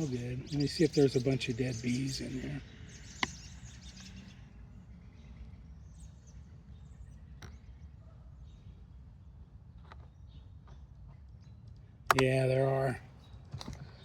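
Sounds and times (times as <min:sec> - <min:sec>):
faint bird chirps: 0:00.0 - 0:14.0
sharp click: 0:12.1 - 0:12.4.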